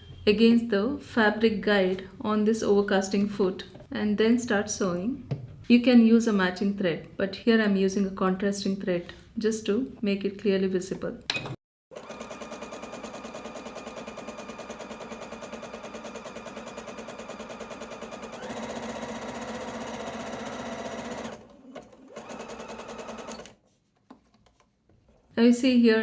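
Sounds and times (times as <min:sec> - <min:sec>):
sewing machine stitching: 0:11.9 - 0:23.6.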